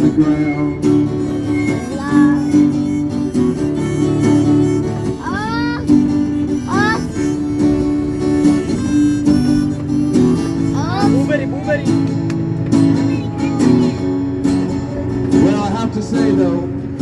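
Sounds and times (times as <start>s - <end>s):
sliding voice-like notes: 0.0s - 3.2s
acoustic guitar strumming chords: 0.0s - 17.0s.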